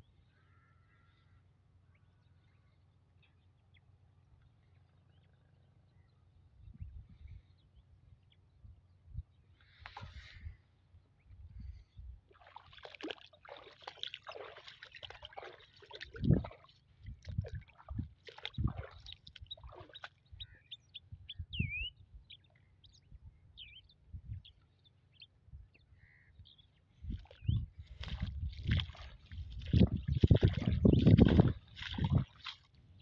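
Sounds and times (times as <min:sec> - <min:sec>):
whistled bird chirps: 0:21.5 - 0:22.0.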